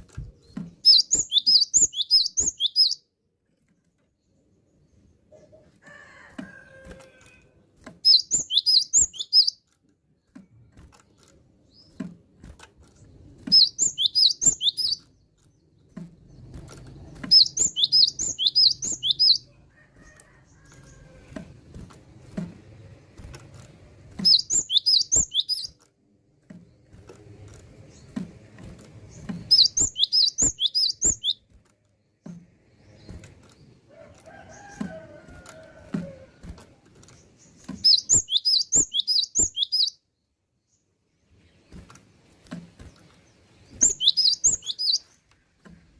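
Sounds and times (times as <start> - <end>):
bird sharp clicks: 24.2 - 25.8, 37.6 - 39.9, 43.8 - 45.2.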